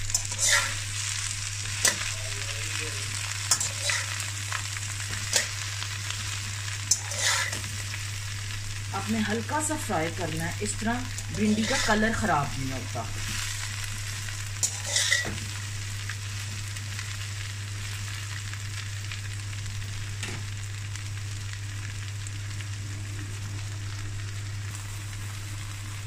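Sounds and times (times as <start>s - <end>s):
okra sizzling in oil: 0.0s - 26.0s
metal spatula scraping pan: 0.2s - 0.8s, 3.5s - 4.2s, 6.9s - 7.7s, 11.4s - 12.1s, 14.6s - 15.4s.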